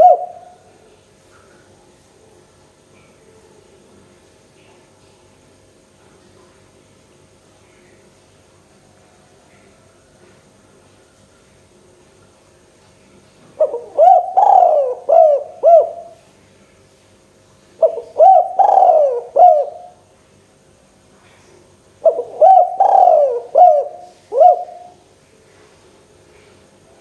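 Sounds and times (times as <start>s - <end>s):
dove cooing: 0.0s - 0.8s, 13.6s - 16.2s, 17.8s - 20.0s, 22.0s - 25.0s.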